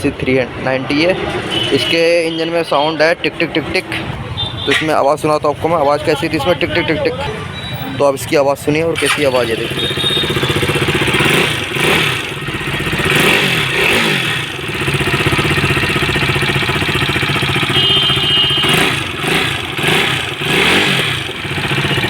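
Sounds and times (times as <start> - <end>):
motorcycle engine revving: 8.9 - 22.0.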